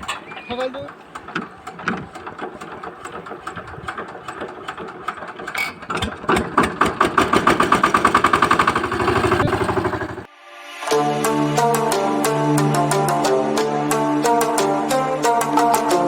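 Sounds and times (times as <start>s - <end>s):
diesel engine cranking and running: 0.0s - 10.3s.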